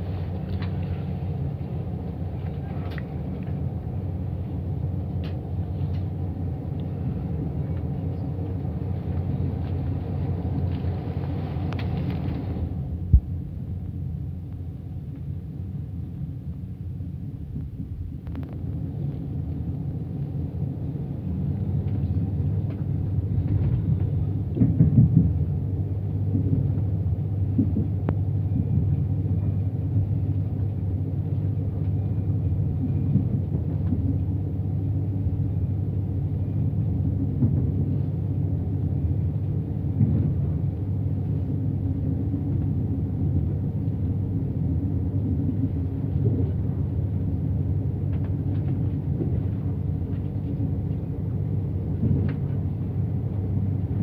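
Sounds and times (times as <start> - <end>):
train running rumble: 0.0 - 54.0
train clatter: 21.2 - 35.6, 36.3 - 44.2, 45.0 - 54.0.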